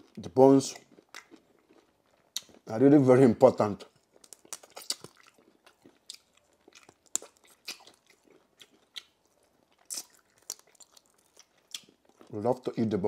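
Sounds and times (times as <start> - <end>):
crunching chicken bone: 3.9 - 12.4.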